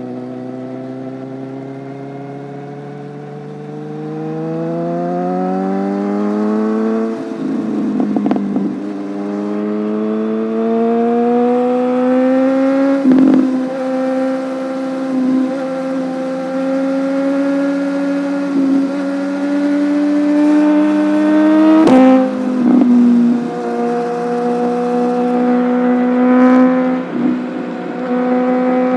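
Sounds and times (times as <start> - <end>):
motorcycle engine revving: 0.0 - 28.9.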